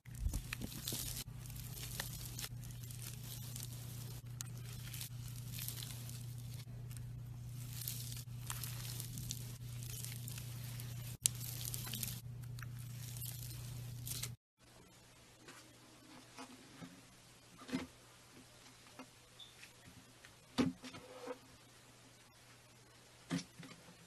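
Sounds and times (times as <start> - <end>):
slime squishing by hand: 0.0 - 14.4
steady low hum: 0.0 - 14.4.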